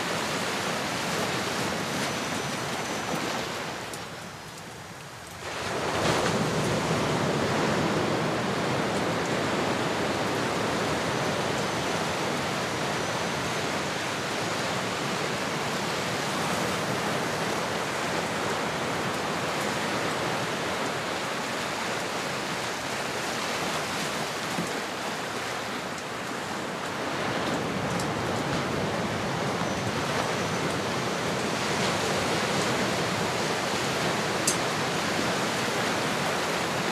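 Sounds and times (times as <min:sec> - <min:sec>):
ocean waves washing in: 0:00.0 - 0:36.9.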